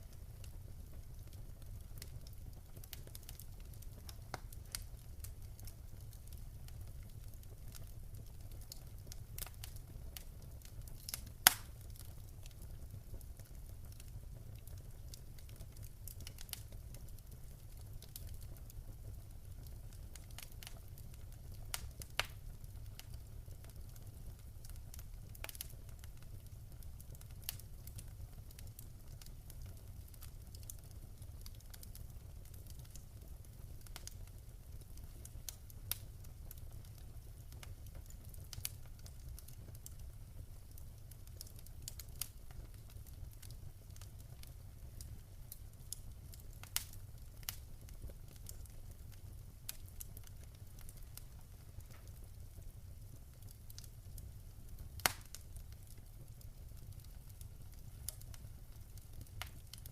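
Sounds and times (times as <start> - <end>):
low fire rumble: 0.0 - 59.9
wood fire crackling: 0.0 - 59.9
fire pops and snaps: 0.1 - 59.9.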